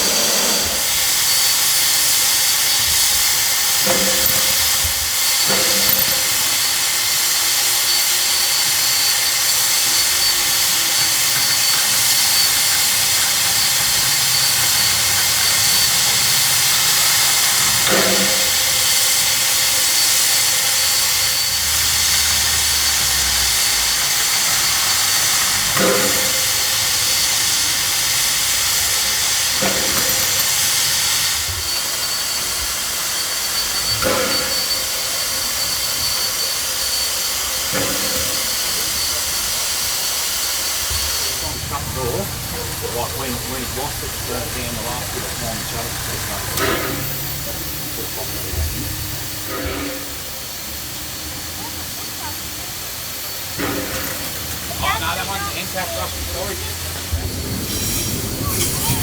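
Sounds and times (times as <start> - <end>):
steam locomotive hissing: 0.0 - 59.0
sharp metal clanks: 2.8 - 7.0, 25.7 - 26.9, 28.2 - 31.3.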